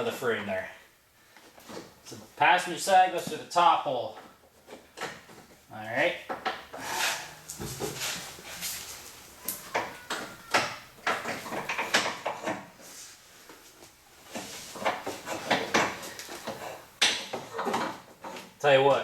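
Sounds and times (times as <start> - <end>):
steel cable scraping and rattling: 6.5 - 9.2.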